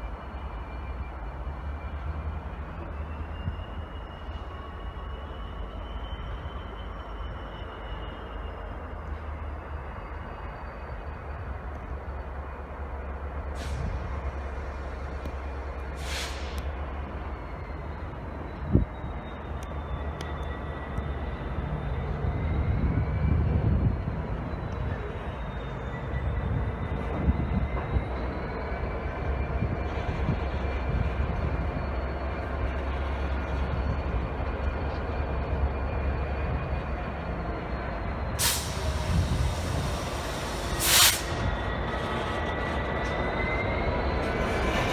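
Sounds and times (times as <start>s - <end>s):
train rumbling: 0.0s - 44.9s
brake air hiss: 13.6s - 16.7s, 38.4s - 42.6s.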